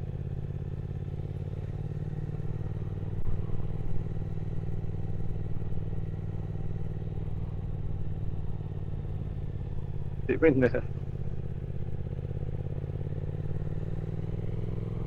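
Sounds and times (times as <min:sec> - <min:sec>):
motorcycle engine climbing in low gear: 0:00.0 - 0:15.0.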